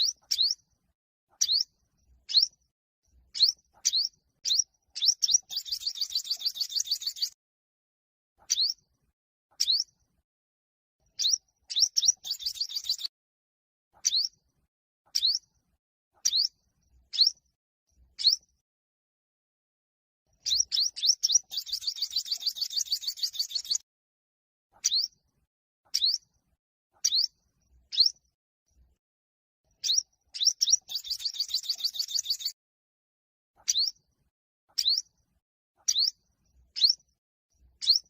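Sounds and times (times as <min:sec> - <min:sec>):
fast buzzy bird trill: 0:20.5 - 0:23.8, 0:29.8 - 0:32.6.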